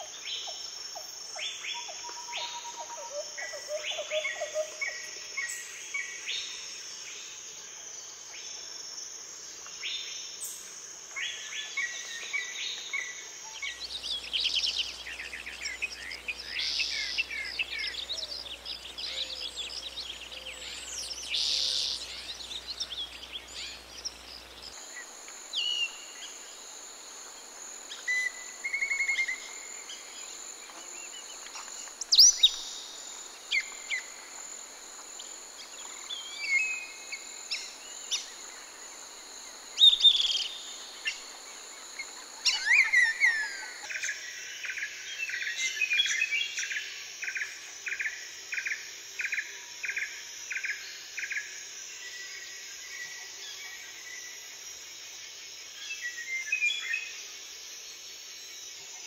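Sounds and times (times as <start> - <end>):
high-pitched insect drone: 0.0 - 59.0
birds whistling and chirping: 32.0 - 32.8.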